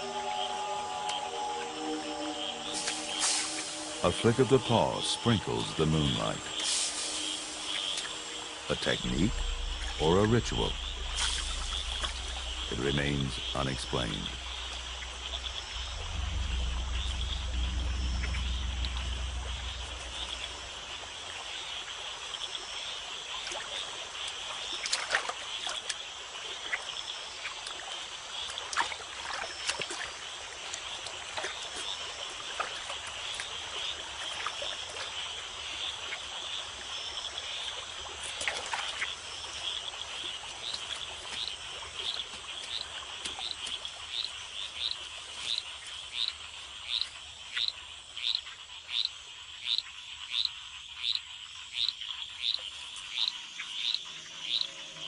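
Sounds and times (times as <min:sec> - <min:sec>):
high insect buzz: 0:00.0 - 0:23.0
frog chirping: 0:00.0 - 0:55.0
frogs calling: 0:00.0 - 0:55.0.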